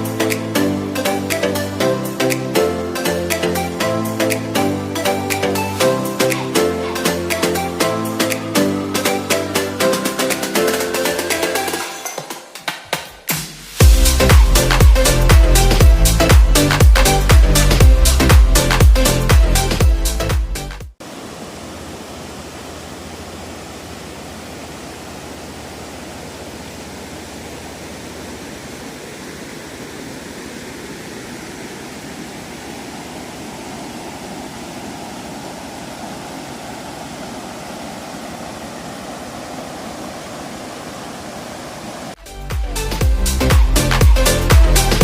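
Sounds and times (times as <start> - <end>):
river water rushing: 21.0 - 42.2.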